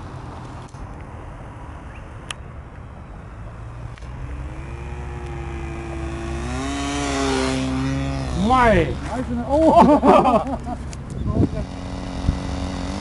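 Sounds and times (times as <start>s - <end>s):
model airplane engine: 3.8s - 9.4s, 11.1s - 13.0s.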